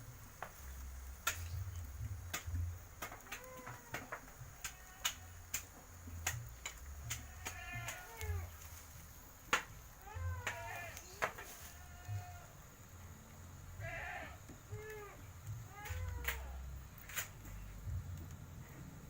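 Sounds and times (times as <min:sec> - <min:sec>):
sharp clicks and knocks: 0:01.2 - 0:08.4
low steady rumble: 0:11.8 - 0:19.0.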